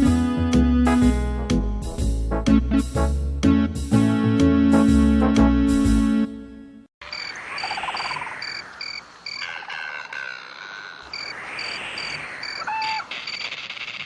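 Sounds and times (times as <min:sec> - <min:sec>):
crickets chirping: 0:07.0 - 0:14.0
frogs croaking: 0:07.0 - 0:14.0.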